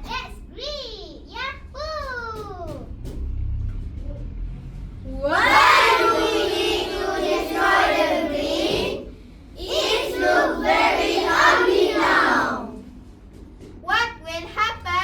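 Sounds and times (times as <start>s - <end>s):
children singing in unison: 5.2s - 12.9s.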